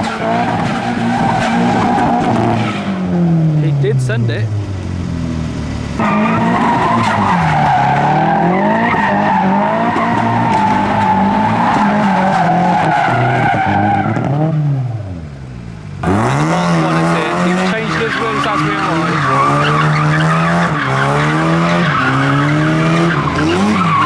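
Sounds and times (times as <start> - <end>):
car engine revving: 0.0 - 24.0
tyre squeal: 16.9 - 24.0.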